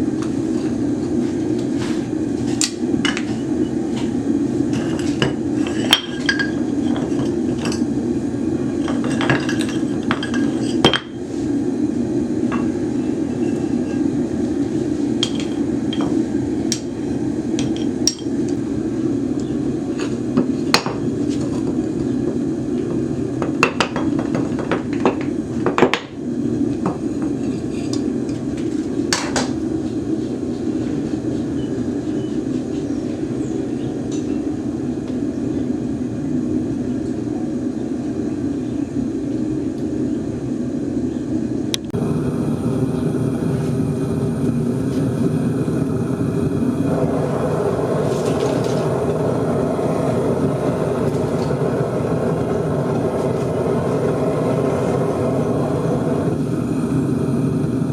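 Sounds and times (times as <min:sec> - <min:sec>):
steady roar: 0:42.0 - 0:57.9.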